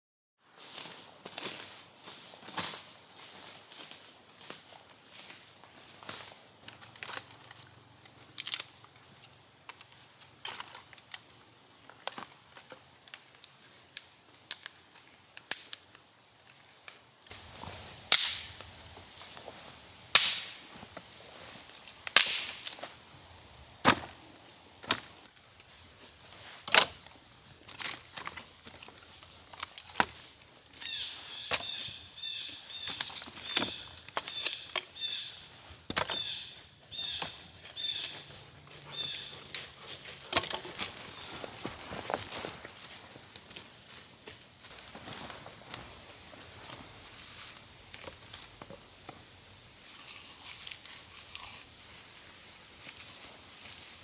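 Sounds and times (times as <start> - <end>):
bird chirping: 30.8 - 39.5.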